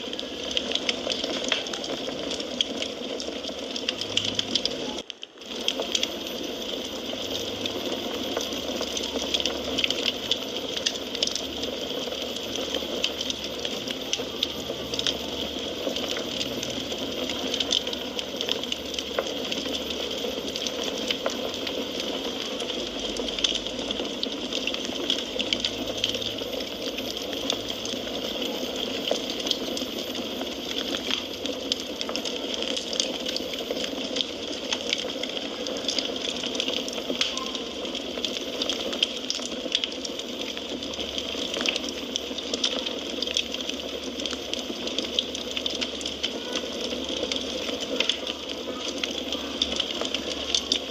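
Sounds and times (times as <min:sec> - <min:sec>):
wood fire crackling: 0:00.0 - 0:50.9.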